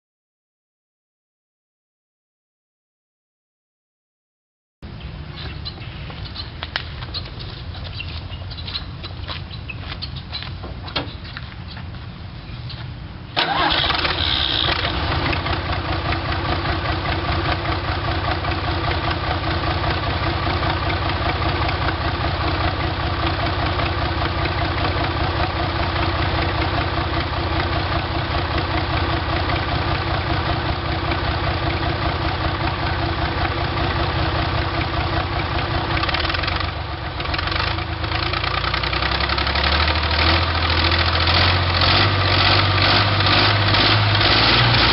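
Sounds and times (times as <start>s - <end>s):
diesel engine starting and running: 13.0s - 44.9s.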